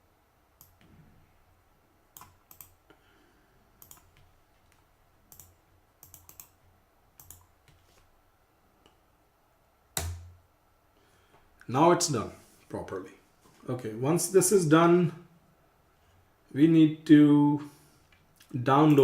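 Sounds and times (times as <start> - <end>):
keyboard keys clicking: 3.8 - 6.5, 7.2 - 7.8.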